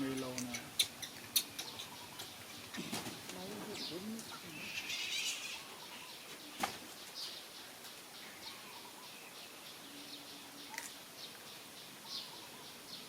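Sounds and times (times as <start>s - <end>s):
small animals chirping: 0.0s - 6.8s.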